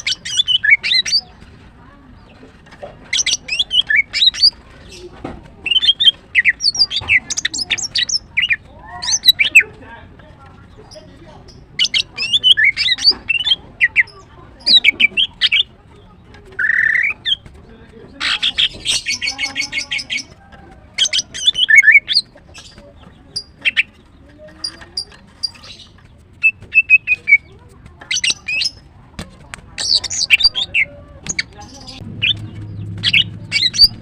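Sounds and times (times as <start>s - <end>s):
bird chirping and whistling: 0.0s - 1.2s, 3.2s - 4.6s, 5.7s - 9.6s, 11.8s - 14.1s, 16.6s - 17.4s, 21.0s - 22.3s, 26.4s - 27.5s, 28.1s - 28.8s, 29.8s - 34.0s.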